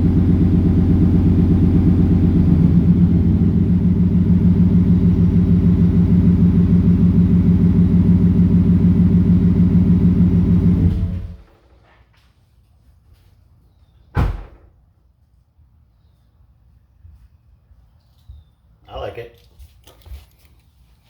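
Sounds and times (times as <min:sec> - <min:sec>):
truck engine idling: 0:00.0 - 0:11.8.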